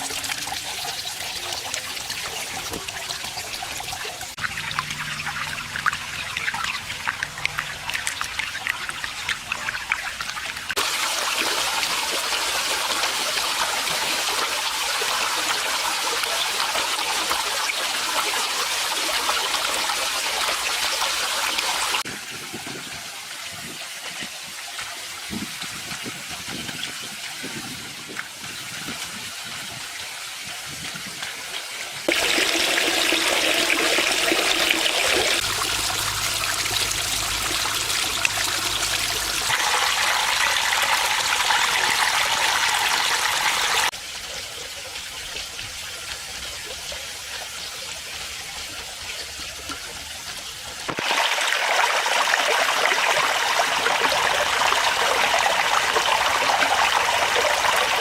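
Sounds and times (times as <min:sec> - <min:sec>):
water splashing and trickling: 0:00.0 - 0:58.0
low hum: 0:35.4 - 0:39.5.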